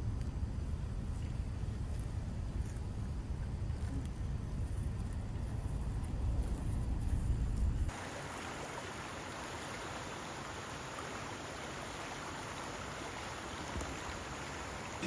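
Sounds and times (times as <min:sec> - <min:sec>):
rushing water: 0:07.9 - 0:15.0.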